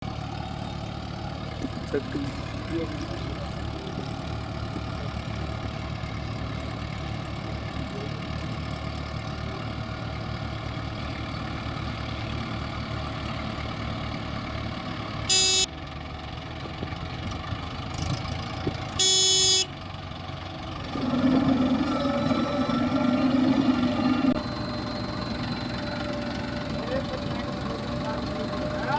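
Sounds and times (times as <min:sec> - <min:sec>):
diesel engine running: 0:00.0 - 0:28.9
vehicle horn blasts: 0:15.3 - 0:15.7, 0:19.0 - 0:19.7.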